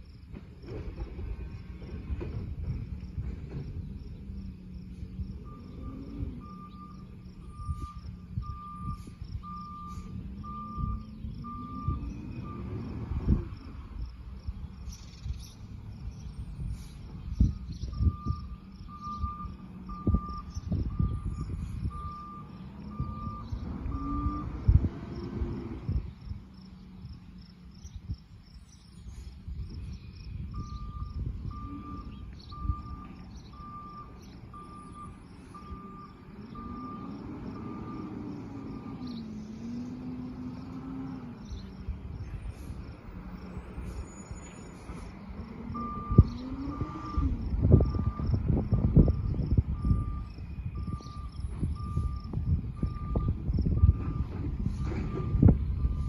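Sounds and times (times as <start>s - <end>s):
truck engine revving: 0.5s - 27.6s, 30.5s - 56.0s
truck warning beeper: 4.3s - 14.1s, 16.4s - 26.1s, 30.3s - 41.4s, 42.0s - 56.0s.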